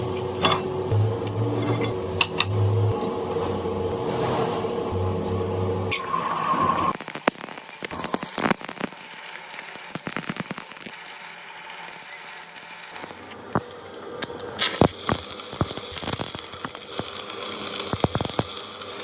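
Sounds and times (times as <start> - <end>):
scraping: 3.3 - 5.0.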